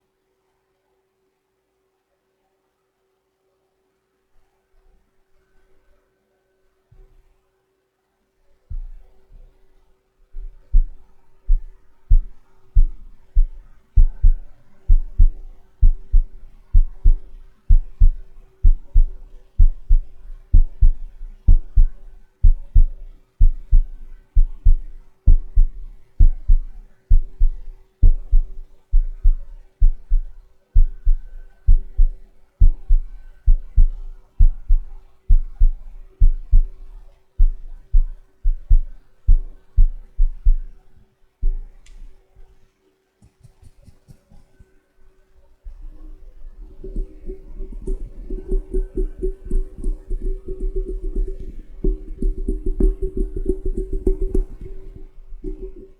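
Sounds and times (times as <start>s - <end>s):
faint steady hum: 0.0s - 55.9s
dull tapping with cotton swab: 10.4s - 40.8s, 41.4s - 42.2s, 46.8s - 55.9s.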